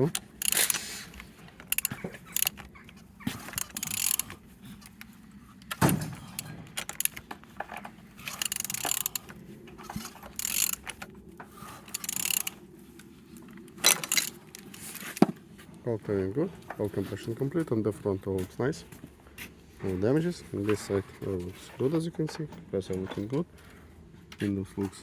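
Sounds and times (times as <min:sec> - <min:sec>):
engine clatter turned by hand: 0:00.0 - 0:12.8, 0:13.4 - 0:19.0.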